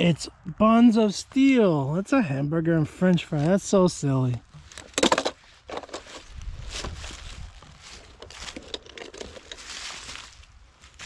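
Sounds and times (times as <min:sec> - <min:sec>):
footsteps rustling on woodland ground: 0:02.8 - 0:11.0.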